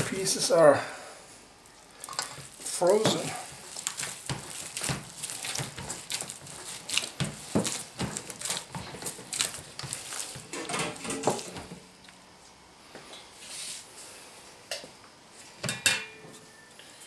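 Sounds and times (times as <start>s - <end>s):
wet squelching and smacking: 2.0s - 10.5s.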